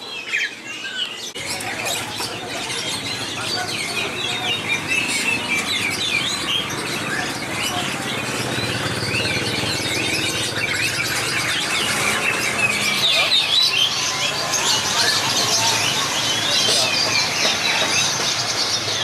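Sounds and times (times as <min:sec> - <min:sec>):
background hubbub: 0:00.0 - 0:19.0
caged songbirds chirping: 0:00.0 - 0:19.0.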